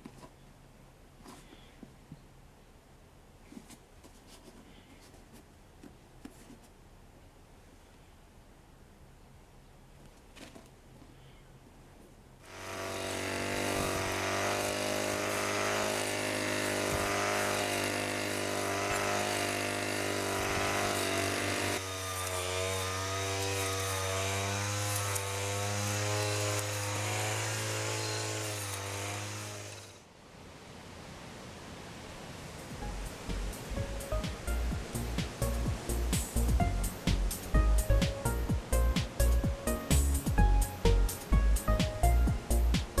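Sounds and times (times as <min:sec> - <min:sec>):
buzzy synth chord: 0:32.8 - 0:43.0.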